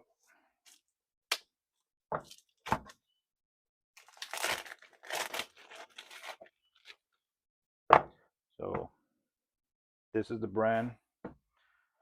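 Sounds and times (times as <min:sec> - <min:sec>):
packaging tearing and crinkling: 0:04.0 - 0:07.0.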